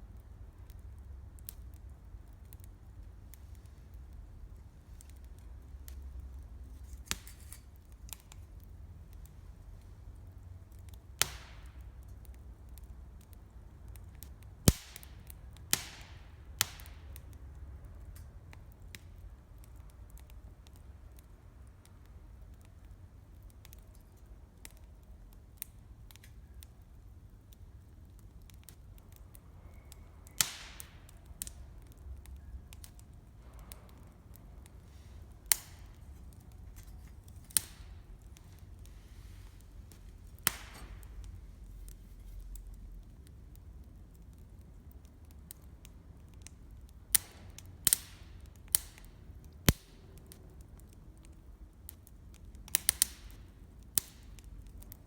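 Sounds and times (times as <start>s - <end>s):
campfire crackling: 0.0s - 55.0s
loud sharp fire pops: 11.1s - 12.2s, 14.1s - 17.4s, 29.6s - 32.0s, 32.8s - 42.3s, 46.5s - 50.4s, 52.7s - 54.5s.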